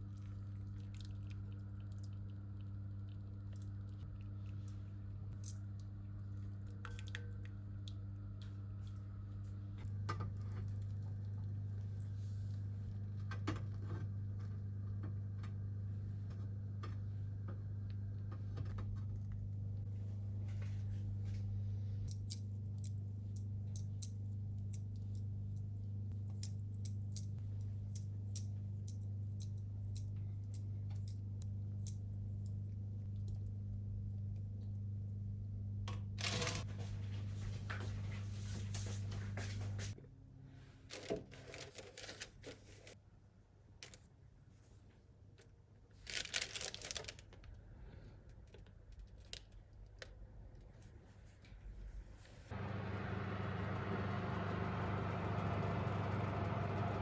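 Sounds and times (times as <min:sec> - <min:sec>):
steady low hum: 0:00.0 - 0:40.9, 0:52.4 - 0:57.0.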